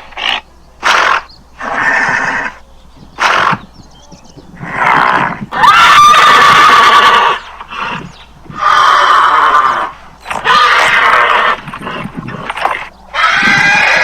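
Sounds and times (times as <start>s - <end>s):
horse neighing: 0.1s - 2.6s, 3.2s - 3.7s, 4.6s - 14.0s.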